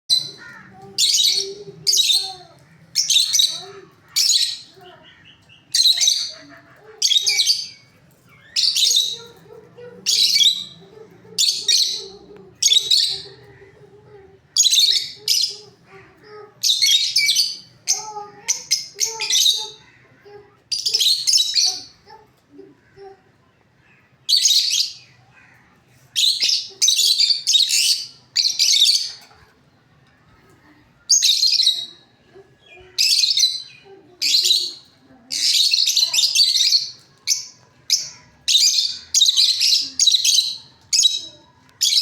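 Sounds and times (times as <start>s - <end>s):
parrot screeching: 33.0s - 42.0s.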